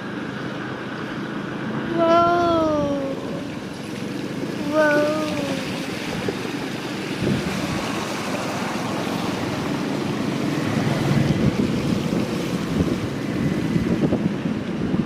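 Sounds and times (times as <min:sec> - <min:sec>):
floodwater rushing and splashing: 0:00.0 - 0:15.0
wind buffeting microphone: 0:00.8 - 0:15.0.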